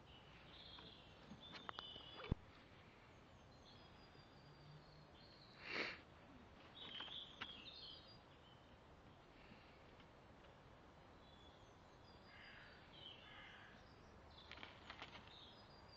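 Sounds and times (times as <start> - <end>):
faint high bird chirps: 0.0 - 2.5, 6.7 - 8.8.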